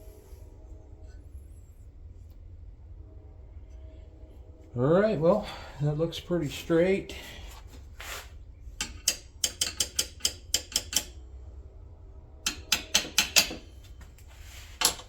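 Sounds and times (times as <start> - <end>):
metal parts clicking and tapping: 8.8 - 11.2, 12.4 - 14.0, 14.8 - 15.0.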